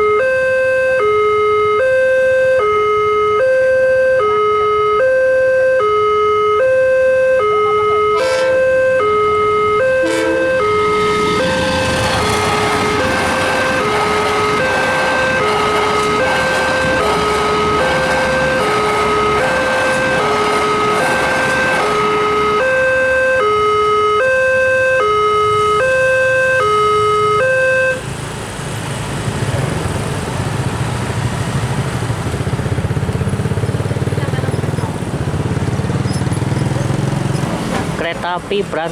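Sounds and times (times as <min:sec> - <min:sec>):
two-tone level crossing alarm: 0:00.0 - 0:28.1
low rumble of vehicle engines: 0:00.0 - 0:38.9
train wheels rushing on rails: 0:10.0 - 0:22.8, 0:28.0 - 0:38.9.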